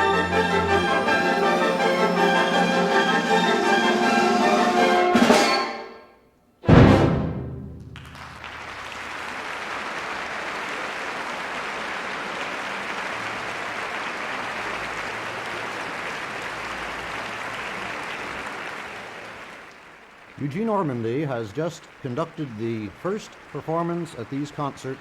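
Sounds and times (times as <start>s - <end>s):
audience applause: 0.0s - 5.2s, 7.8s - 25.0s
orchestra closing chord: 0.0s - 8.2s.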